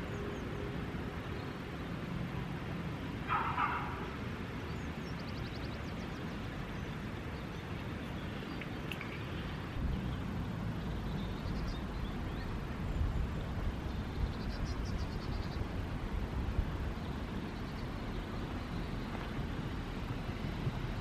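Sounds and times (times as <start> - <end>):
wind buffeting microphone: 8.9 - 21.0.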